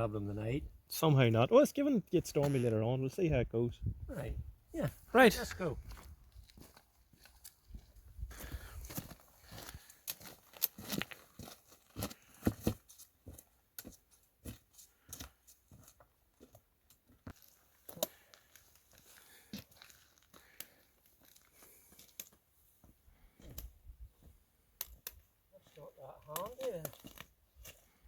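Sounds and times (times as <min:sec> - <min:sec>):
footsteps crunching on frost: 0:05.2 - 0:16.6.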